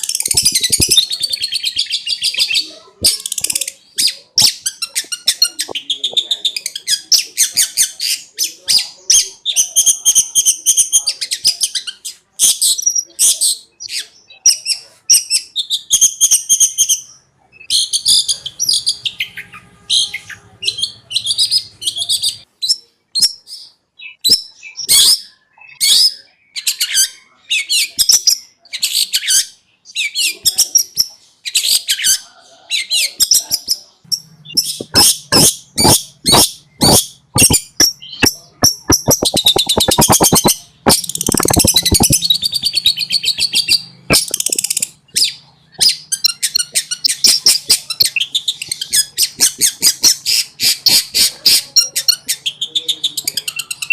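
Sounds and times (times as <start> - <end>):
shrike singing high chirps and trills: 0.0 - 12.1, 33.4 - 49.8.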